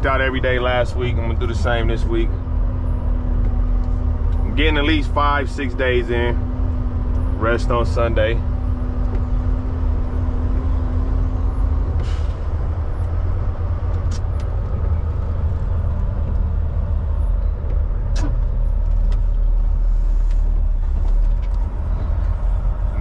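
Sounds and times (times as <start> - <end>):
truck diesel engine rumble: 0.0 - 23.0
brief clicks or squeaks: 18.1 - 18.5.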